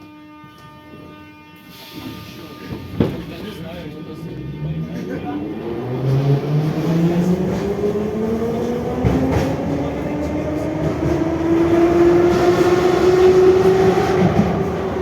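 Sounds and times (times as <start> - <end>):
train traction motors whining: 4.2 - 15.0.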